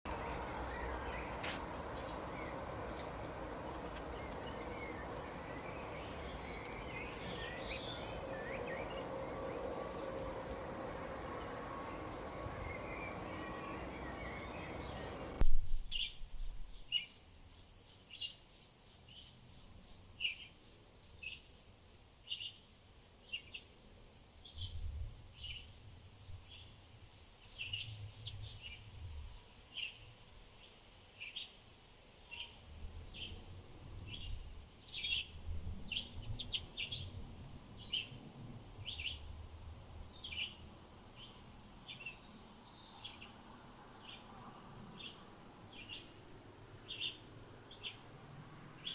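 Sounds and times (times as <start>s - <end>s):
scattered lower bird chirps: 12.6s - 23.7s.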